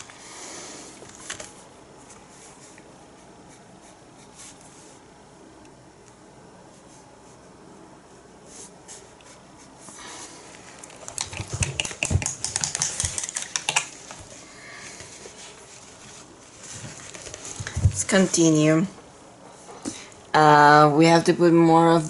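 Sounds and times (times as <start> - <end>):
clicks and taps: 11.1 - 14.2.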